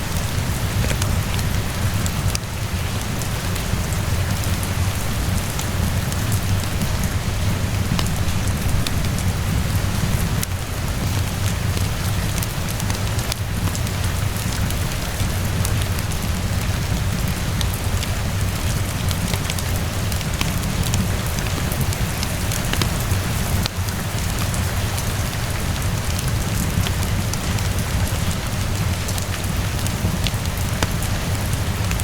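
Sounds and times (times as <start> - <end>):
rain hissing: 0.0 - 32.0
wood fire crackling: 0.0 - 32.0.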